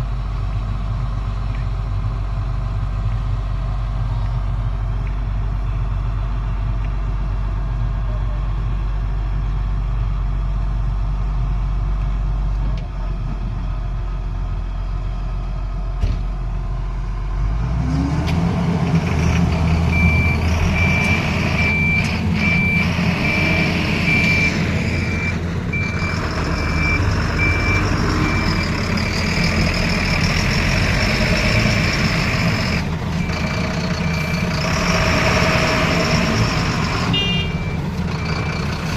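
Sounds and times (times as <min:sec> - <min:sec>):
excavator diesel engine running: 0:00.0 - 0:38.9
warning alarm beeping: 0:19.9 - 0:30.4, 0:31.2 - 0:38.9.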